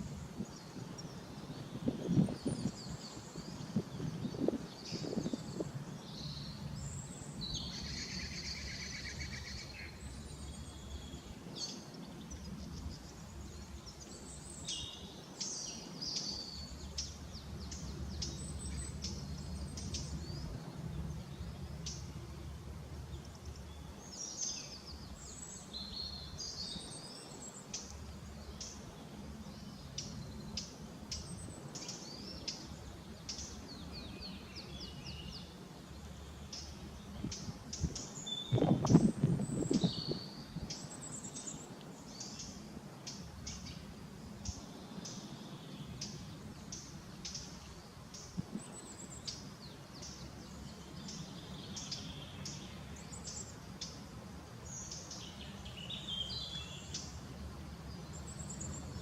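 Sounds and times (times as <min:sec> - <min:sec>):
small birds chirping and singing: 0:00.0 - 0:59.0
steady low rumble: 0:16.6 - 0:25.4.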